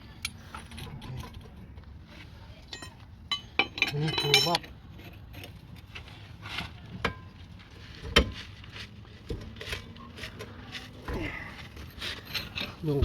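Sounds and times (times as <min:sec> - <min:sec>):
hand tools clinking on metal: 0:02.7 - 0:05.5, 0:11.2 - 0:13.0.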